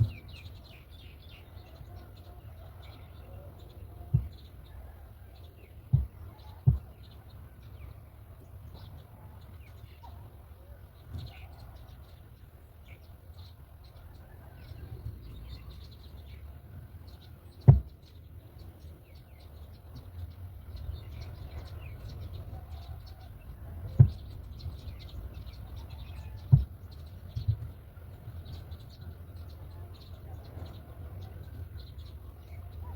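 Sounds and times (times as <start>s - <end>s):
faint high bird chirps: 0.0s - 32.9s
steady low rumble: 0.0s - 32.9s
sharp thumps: 4.1s - 4.4s, 5.9s - 7.0s, 17.6s - 17.9s, 23.9s - 24.3s
small knock: 4.1s - 4.4s, 17.6s - 17.9s, 23.9s - 24.3s, 26.5s - 26.7s.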